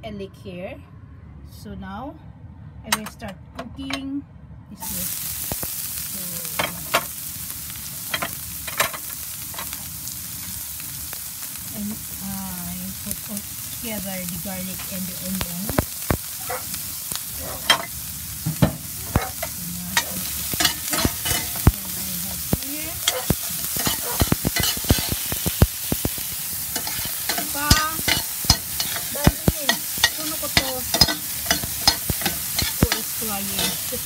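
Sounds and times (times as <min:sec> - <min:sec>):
garlic and onion sizzling in pan: 0:04.8 - 0:34.0
utensil clicking against pan: 0:19.1 - 0:34.0.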